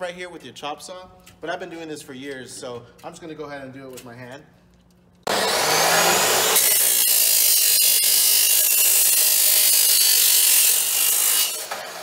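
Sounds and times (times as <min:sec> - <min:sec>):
chop saw grinding steel: 0:05.2 - 0:12.0
saw motor running freely: 0:05.3 - 0:12.0.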